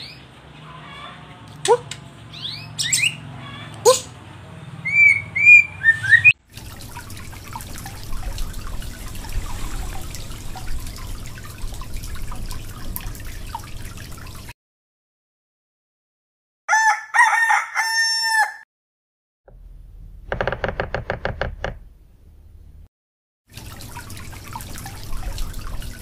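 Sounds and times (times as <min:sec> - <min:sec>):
bird whistling and chirping: 0:02.3 - 0:03.2, 0:04.8 - 0:06.4
aquarium water noise: 0:03.5 - 0:14.6, 0:23.5 - 0:26.0
low aquarium hum: 0:06.5 - 0:14.5, 0:23.6 - 0:26.0.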